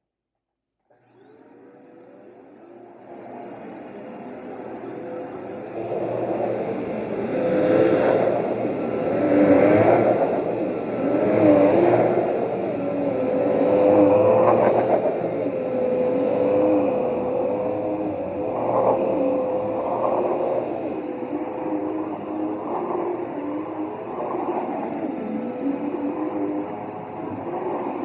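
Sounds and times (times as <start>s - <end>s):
vacuum cleaner running: 0.9s - 28.0s.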